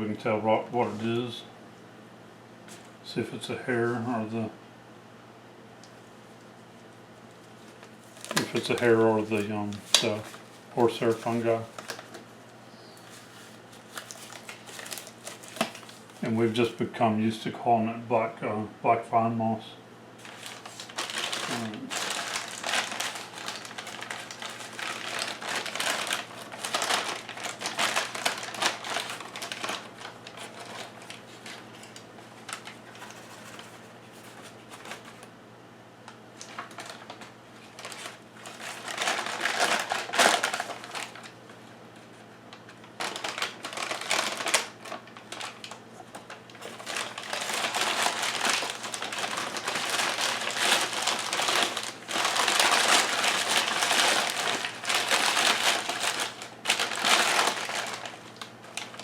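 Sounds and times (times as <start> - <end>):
plastic bag crinkling: 7.7 - 12.4, 13.0 - 16.4, 20.2 - 35.3, 36.3 - 59.0.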